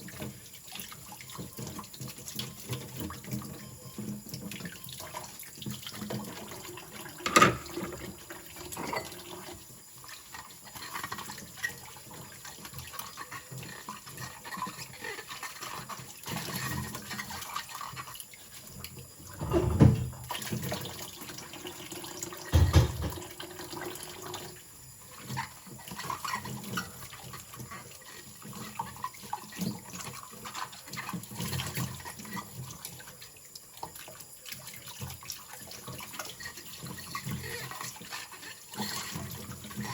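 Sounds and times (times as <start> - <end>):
water splashing in sink: 0.0 - 39.9
dishes clinking: 7.2 - 9.4, 19.4 - 20.3, 22.6 - 23.3
heavy knocks: 22.6 - 23.2.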